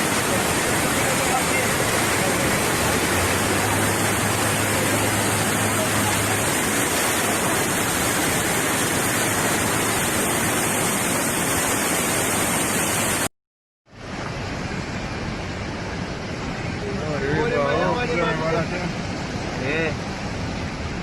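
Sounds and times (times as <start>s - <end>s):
storm wind and rain: 0.0s - 13.3s, 13.9s - 21.0s.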